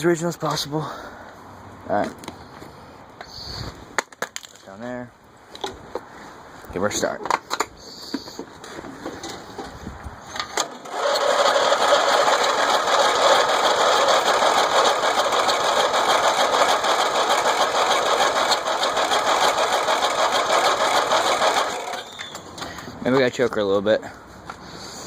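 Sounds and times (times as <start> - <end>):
electric starter cranking engine: 10.3 - 22.7.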